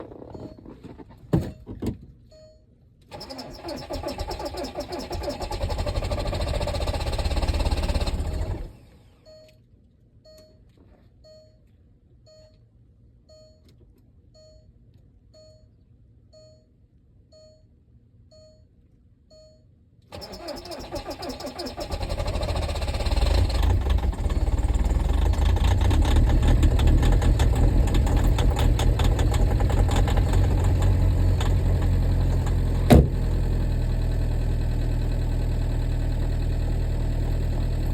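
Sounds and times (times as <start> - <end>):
faint short beep: 0.3 - 0.7, 2.3 - 2.7, 9.2 - 9.6, 10.2 - 11.6, 12.3 - 12.7, 13.3 - 14.8, 15.4 - 19.7
diesel engine clattering idle: 3.1 - 8.8, 20.2 - 37.9
engine cranking: 3.1 - 8.8, 20.1 - 34.0.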